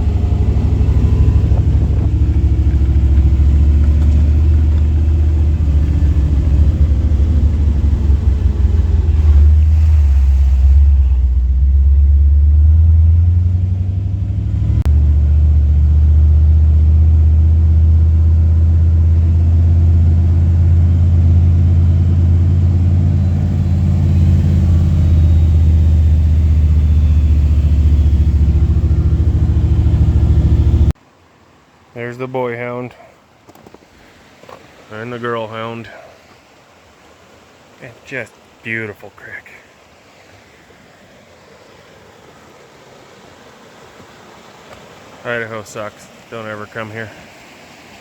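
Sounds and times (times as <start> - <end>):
engine running low drone: 0.0 - 31.0.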